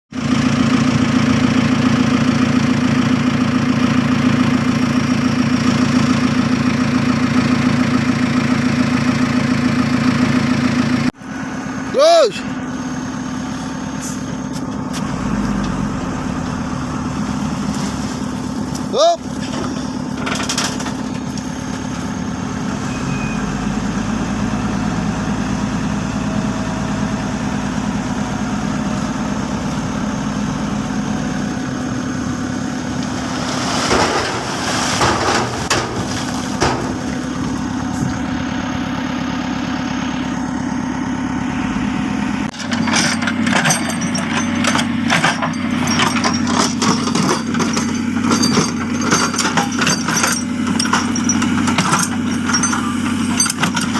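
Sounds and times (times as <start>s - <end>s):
diesel engine running: 0.1s - 53.9s
clanks and knocks: 33.7s - 37.5s, 42.5s - 53.9s.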